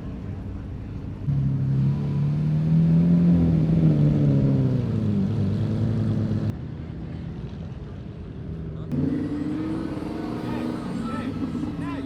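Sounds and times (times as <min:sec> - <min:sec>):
car engine accelerating: 0:08.9 - 0:12.0.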